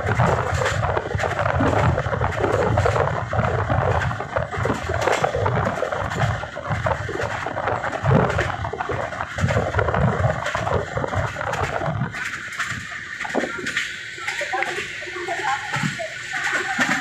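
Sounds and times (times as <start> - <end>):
train clattering: 0.0 - 17.0
train wheels rumbling on rails: 0.0 - 17.0.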